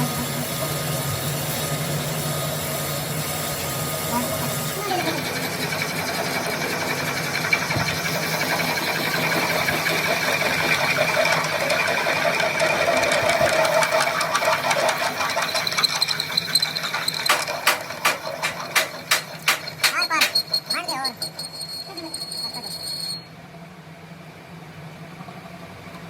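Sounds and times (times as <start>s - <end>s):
power tool whining on metal: 0.0s - 23.3s
sharp metallic clicks: 15.4s - 20.8s.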